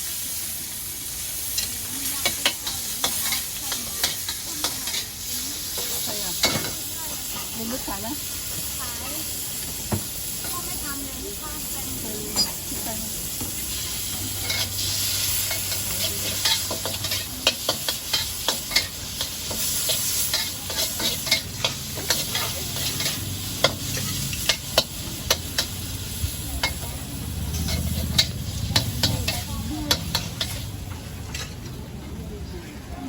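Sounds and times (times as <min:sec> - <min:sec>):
food sizzling in a wok: 0:00.0 - 0:31.9
spatula clanking on pan: 0:01.5 - 0:05.1, 0:05.8 - 0:07.4, 0:15.4 - 0:25.9, 0:26.6 - 0:31.6.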